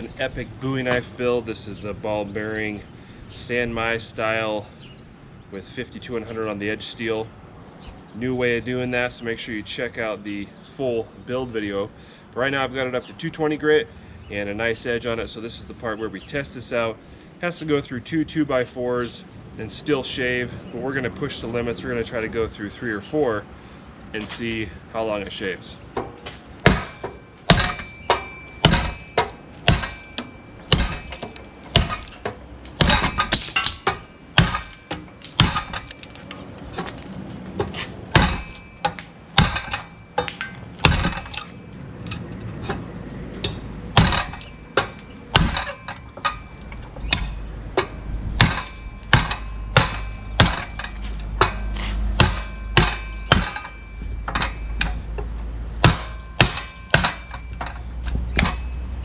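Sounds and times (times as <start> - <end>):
low steady hum: 26.0 - 59.0.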